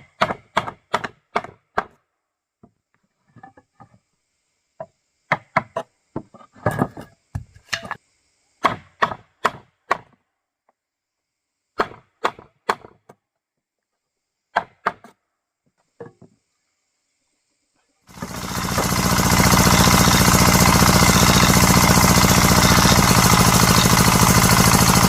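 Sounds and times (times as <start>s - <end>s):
hand tool striking wood: 0.0s - 2.0s, 5.3s - 8.0s, 8.6s - 10.2s, 11.8s - 13.1s, 14.6s - 15.1s.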